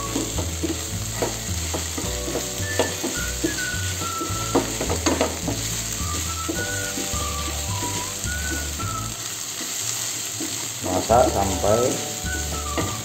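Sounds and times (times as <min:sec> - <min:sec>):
wooden spatula scraping pan: 0:00.0 - 0:08.8
paste sizzling in frying pan: 0:00.0 - 0:13.0.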